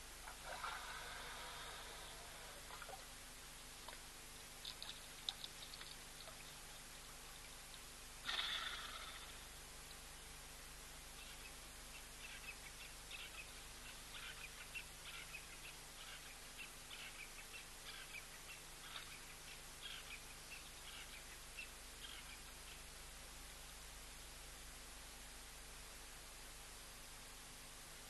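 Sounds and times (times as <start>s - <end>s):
steady hiss: 0.0s - 28.0s
faint bird chirps: 8.2s - 10.3s, 11.1s - 23.1s.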